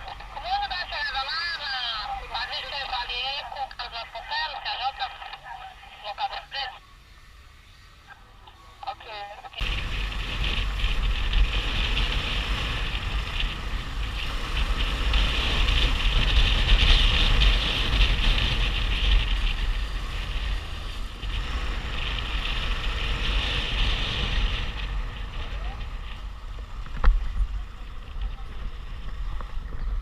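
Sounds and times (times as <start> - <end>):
motorcycle engine rumble: 0.0 - 4.4, 5.2 - 30.0
wind buffeting microphone: 9.6 - 30.0.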